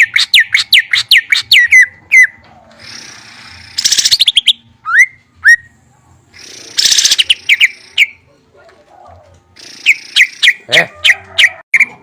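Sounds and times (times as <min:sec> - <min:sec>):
songbird whistling song: 0:00.0 - 0:02.4, 0:03.6 - 0:05.8, 0:06.4 - 0:08.2, 0:09.6 - 0:12.0.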